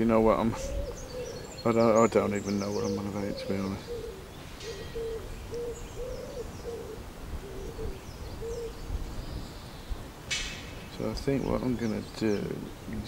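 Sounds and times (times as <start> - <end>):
bird hooting: 0.0 - 8.9
faint bird chirps: 0.4 - 10.1.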